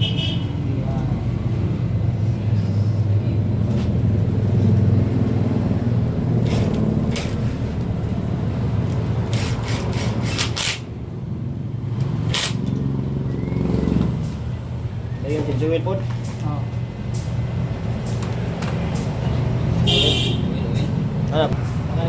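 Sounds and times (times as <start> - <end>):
motor vehicle rumble: 0.0 - 22.0
sharp clicks or clanks: 9.3 - 10.9, 12.0 - 12.9.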